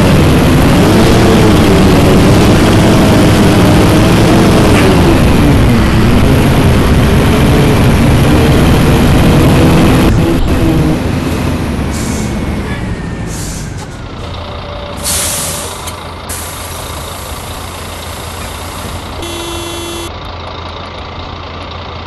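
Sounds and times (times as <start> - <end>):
bus diesel engine running: 0.0 - 22.0
short electronic beep: 19.2 - 20.1.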